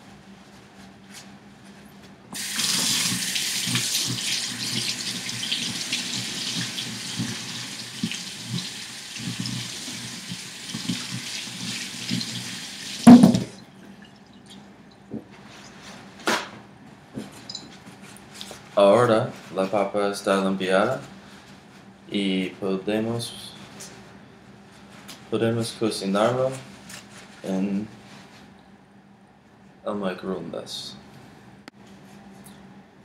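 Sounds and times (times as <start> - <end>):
tap running into a sink: 2.4 - 13.6.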